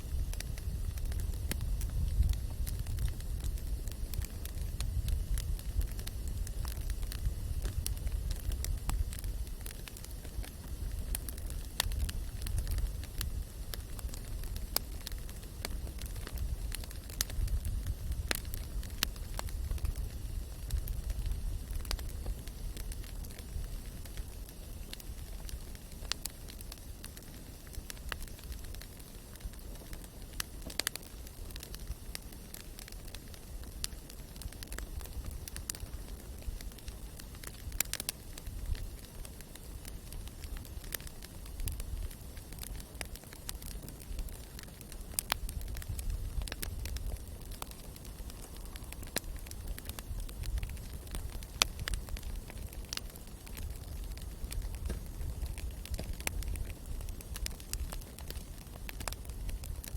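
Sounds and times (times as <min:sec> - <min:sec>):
steady low rumble: 0:00.0 - 0:25.9
campfire wood crackling and popping: 0:00.0 - 0:59.9.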